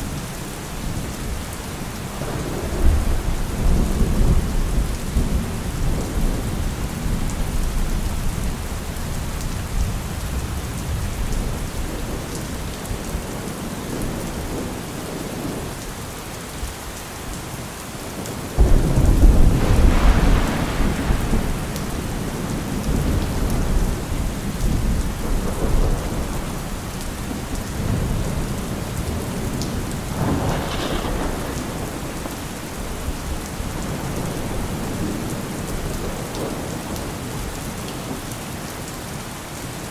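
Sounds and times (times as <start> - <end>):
heavy rain pouring: 0.0 - 39.9
rolling thunder: 2.1 - 15.7, 18.6 - 37.6
loud thunderclap: 2.2 - 8.2, 18.6 - 37.0.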